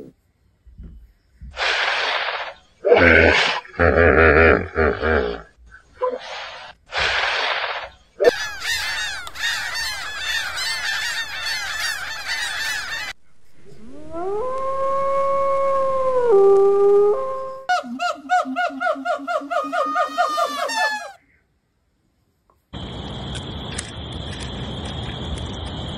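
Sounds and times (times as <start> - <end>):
gulls and terns calling: 8.3 - 13.2
wolf howling: 13.6 - 21.2.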